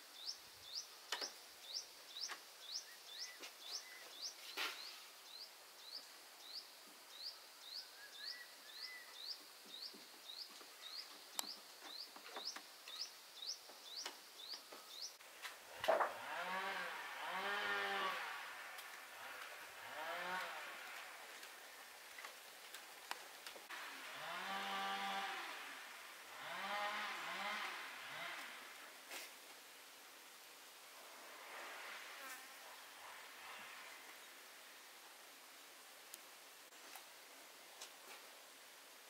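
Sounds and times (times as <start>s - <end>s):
bird chirping: 0.1s - 15.2s.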